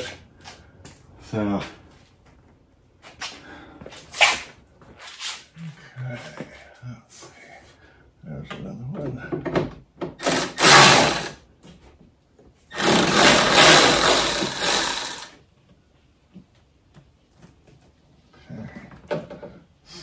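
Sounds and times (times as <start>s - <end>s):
power ratchet running: 10.2s - 11.4s, 12.7s - 15.4s.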